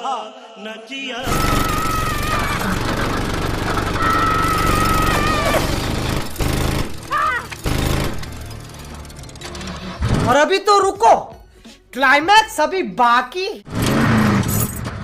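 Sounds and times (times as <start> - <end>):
tyres screeching: 1.2 - 5.9
dense rattling: 1.2 - 10.5.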